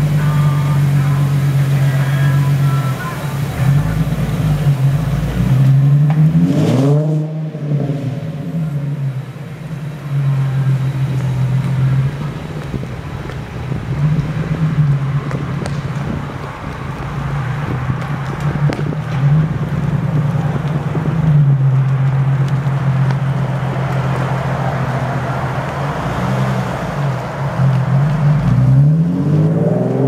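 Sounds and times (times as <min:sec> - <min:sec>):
car exhaust note: 0:00.0 - 0:16.9.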